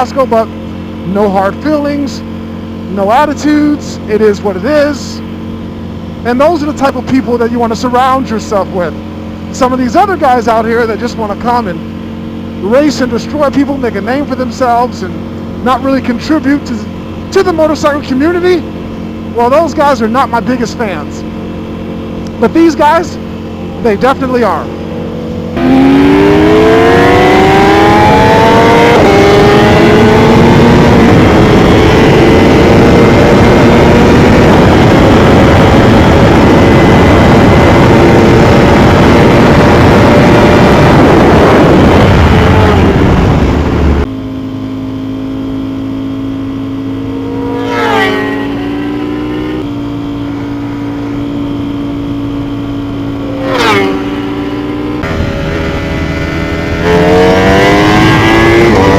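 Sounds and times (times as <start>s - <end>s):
motorcycle engine accelerating: 0.0s - 58.9s
rushing wind noise: 24.6s - 44.1s, 46.6s - 58.9s.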